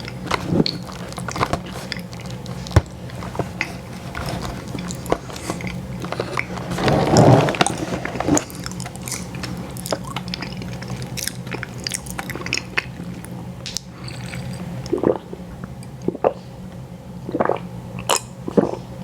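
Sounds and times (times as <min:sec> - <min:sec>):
chewing and biting ice cream: 0:00.0 - 0:16.4, 0:17.3 - 0:19.0.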